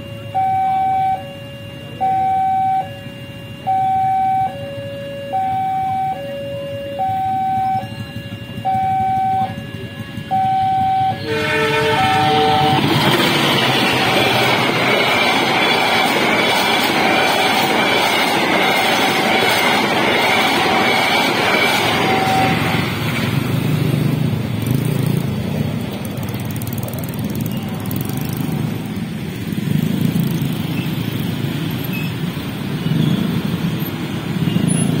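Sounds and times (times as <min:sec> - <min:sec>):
motorcycle engines idling and revving: 0:00.0 - 0:35.0
train carriages rushing past: 0:07.9 - 0:35.0.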